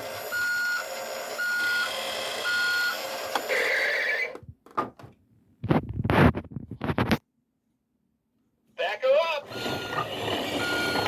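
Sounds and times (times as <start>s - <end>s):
toy reversing beep: 0.1s - 4.0s, 9.6s - 11.0s.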